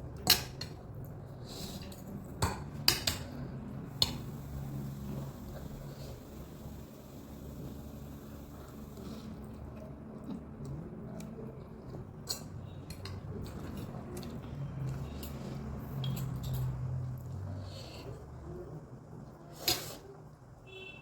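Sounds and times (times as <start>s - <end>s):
wet chewing of noodles: 3.4s - 20.1s.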